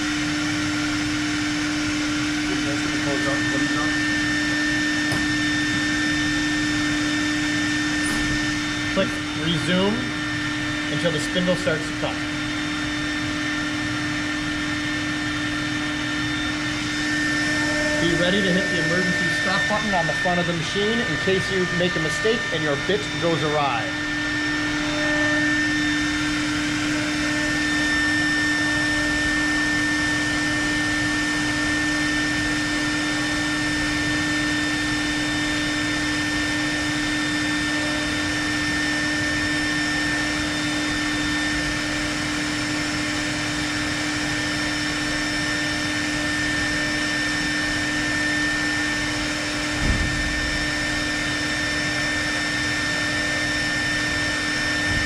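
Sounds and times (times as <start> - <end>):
router spindle whining: 0.0 - 55.0.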